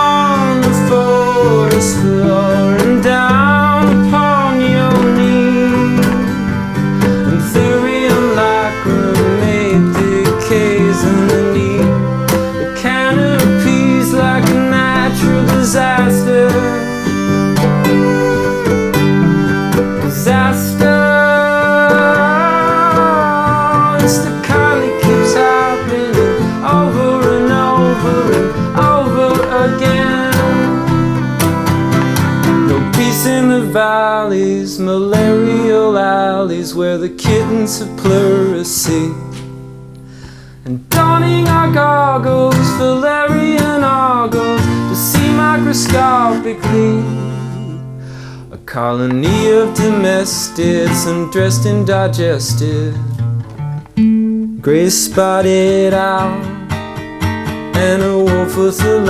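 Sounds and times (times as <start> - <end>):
sustained melody line: 0.0 - 33.9
person singing: 0.0 - 39.5, 40.7 - 53.1, 57.6 - 59.0
plucked guitar notes: 0.0 - 59.0.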